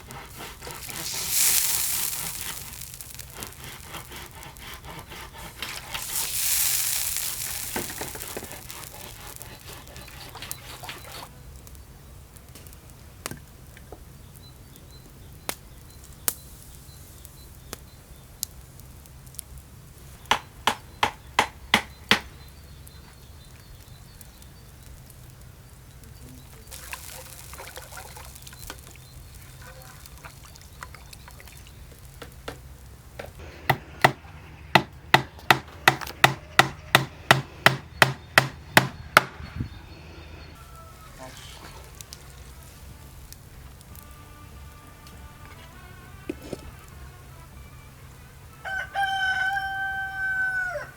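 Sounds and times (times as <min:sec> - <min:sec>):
knife chopping on wooden board: 0:34.8 - 0:39.3.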